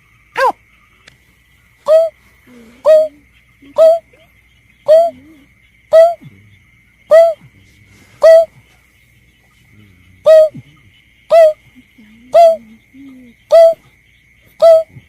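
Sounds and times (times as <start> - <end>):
bird call: 1.8 - 6.3, 7.1 - 7.5, 8.1 - 8.6, 10.2 - 15.0.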